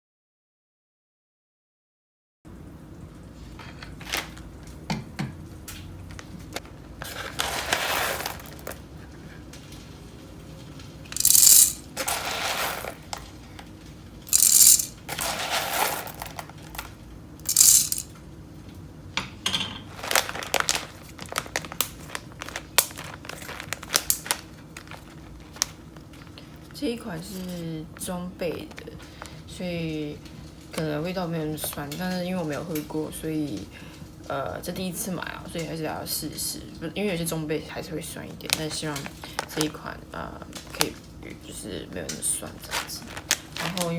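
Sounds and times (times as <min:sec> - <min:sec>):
packaging rustling and crinkling: 0:06.1 - 0:08.9, 0:11.0 - 0:13.6, 0:14.3 - 0:18.0, 0:19.9 - 0:29.4, 0:38.4 - 0:39.8, 0:42.4 - 0:43.9
objects clicking and knocking: 0:11.1 - 0:13.3, 0:14.3 - 0:18.1.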